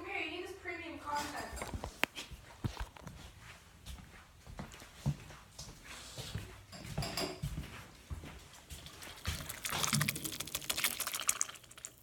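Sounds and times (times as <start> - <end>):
wet squelching of food: 8.5 - 12.0.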